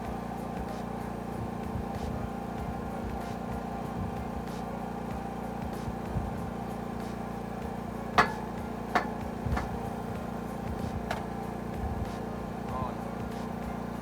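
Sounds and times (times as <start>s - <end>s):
steady engine-like hum: 0.0s - 14.0s
sharp knocks on metal gate: 8.2s - 10.1s, 11.0s - 11.4s.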